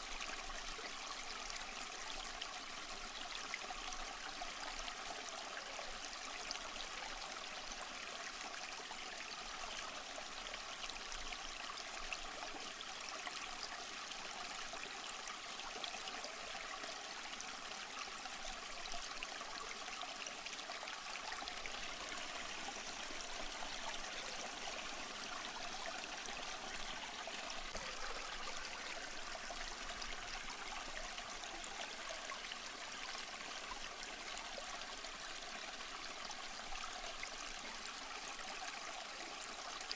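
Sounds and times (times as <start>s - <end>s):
stream trickling over rocks: 0.0s - 39.9s.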